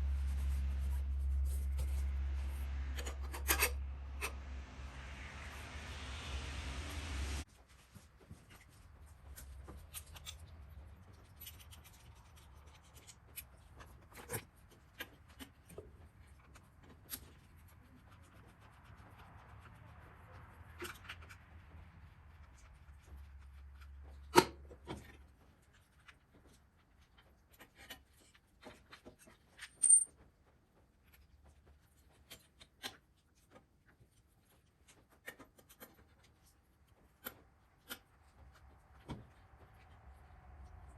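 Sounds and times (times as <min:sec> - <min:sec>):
faint low hum: 0:00.0 - 0:40.9.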